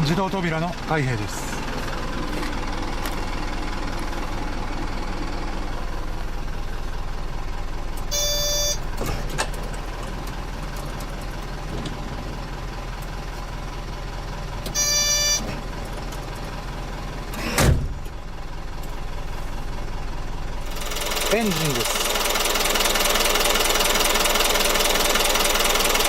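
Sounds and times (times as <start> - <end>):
engine idling: 0.0 - 26.0
bus door warning beep: 8.0 - 9.0, 14.6 - 15.6
automatic door opening and shutting: 8.0 - 10.4, 17.3 - 18.1.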